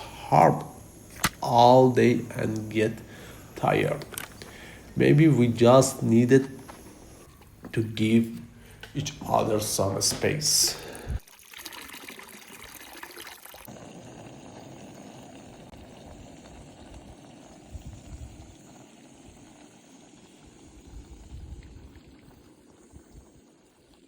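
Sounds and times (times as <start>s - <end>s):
water flowing: 0.0s - 24.0s.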